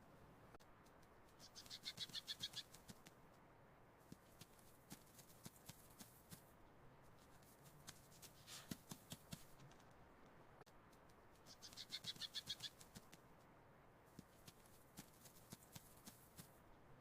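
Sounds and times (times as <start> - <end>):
low background hiss: 0.0 - 17.0.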